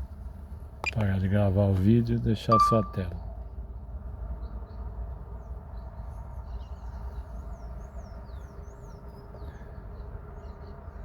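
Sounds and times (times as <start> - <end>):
birds chirping: 2.5 - 3.2.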